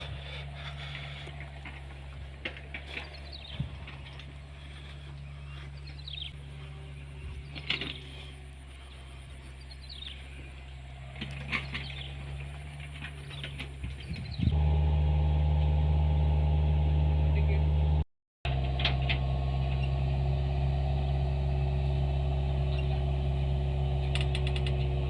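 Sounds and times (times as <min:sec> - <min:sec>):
birds chirping: 0:00.0 - 0:14.7
engine running low: 0:00.0 - 0:25.0.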